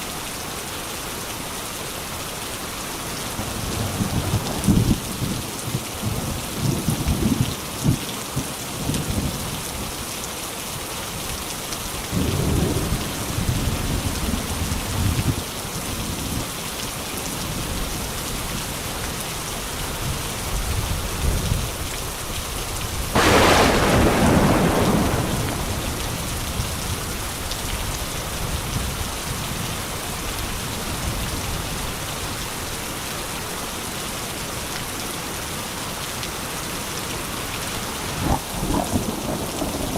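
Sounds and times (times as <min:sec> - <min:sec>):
steady rain: 0:00.0 - 0:39.9
loud thunderclap: 0:23.2 - 0:27.4, 0:38.3 - 0:39.9
thunder rolling: 0:23.2 - 0:27.4, 0:38.3 - 0:39.9.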